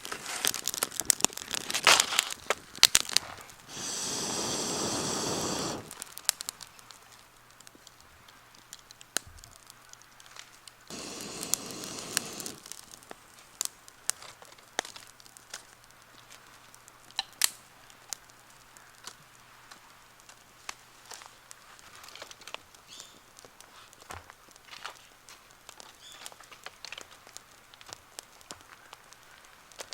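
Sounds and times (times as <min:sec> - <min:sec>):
campfire crackling and popping: 0:00.0 - 0:29.9
loud rushing hiss: 0:03.7 - 0:06.0, 0:10.9 - 0:12.9.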